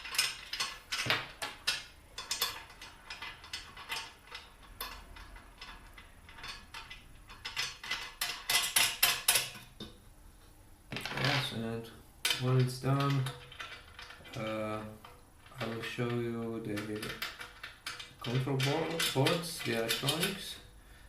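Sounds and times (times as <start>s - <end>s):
metal clicks of screws and tools: 0.0s - 9.7s, 12.2s - 20.6s.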